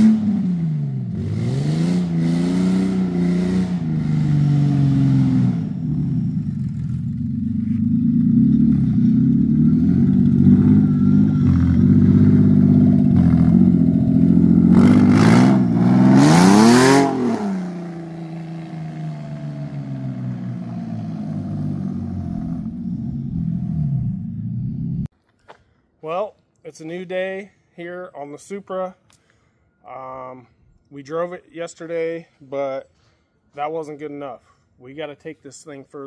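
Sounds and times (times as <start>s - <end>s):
car engine revving: 0.0s - 25.1s.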